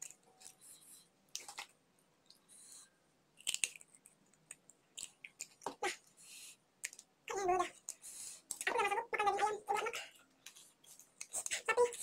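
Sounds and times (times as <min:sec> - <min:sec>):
person chewing and biting: 0:03.4 - 0:05.6.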